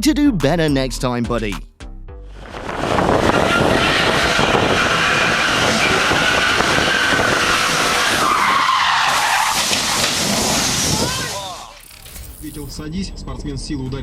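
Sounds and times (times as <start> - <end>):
car tyres squealing: 2.4 - 12.1.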